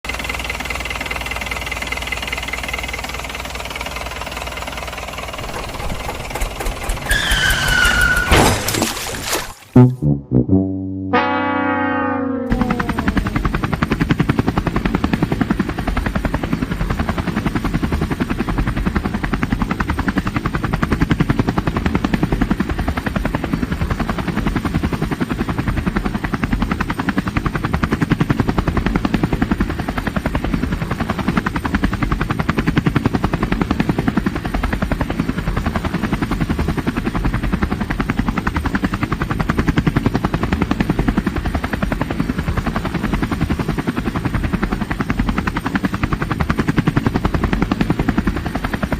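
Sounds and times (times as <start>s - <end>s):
helicopter rotor chopping: 0.1s - 9.1s, 12.4s - 48.9s.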